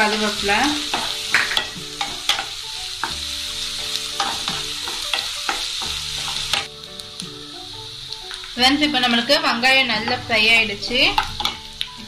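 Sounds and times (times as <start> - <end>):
vegetables sizzling in hot oil: 0.0 - 12.0
spatula scraping and tapping pan: 0.8 - 3.2.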